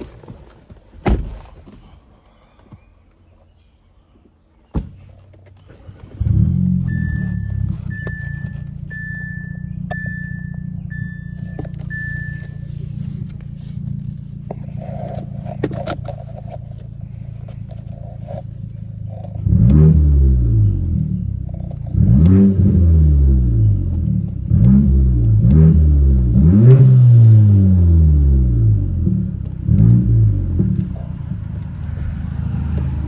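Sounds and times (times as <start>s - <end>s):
car engine starting and idling: 4.8s - 33.0s
dashboard chime beeping: 6.8s - 12.7s.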